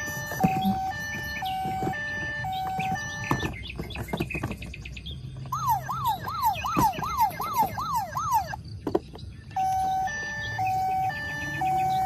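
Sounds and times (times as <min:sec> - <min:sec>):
toy siren yelping: 0:00.0 - 0:03.6, 0:05.5 - 0:08.6, 0:09.5 - 0:12.0.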